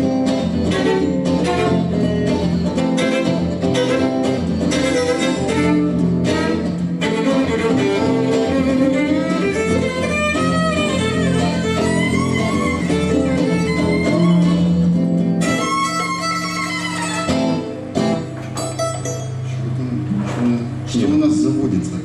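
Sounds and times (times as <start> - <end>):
guitar strumming: 0.0 - 20.8
violin melody with sliding notes: 0.3 - 17.8.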